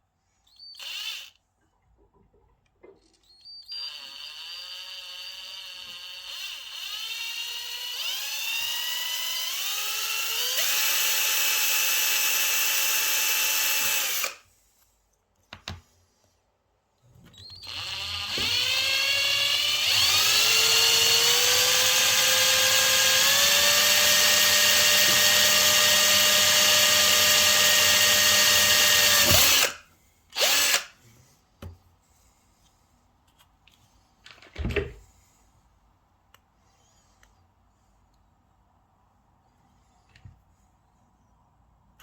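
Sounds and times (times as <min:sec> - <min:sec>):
power tool motor whining: 0:17.4 - 0:29.8, 0:30.4 - 0:30.9.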